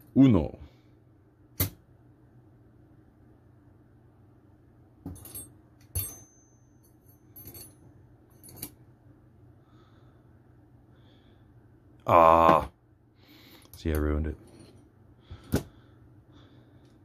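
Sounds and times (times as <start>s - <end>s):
metal parts clinking: 5.1s - 8.8s
thin high metal ring: 5.1s - 8.8s.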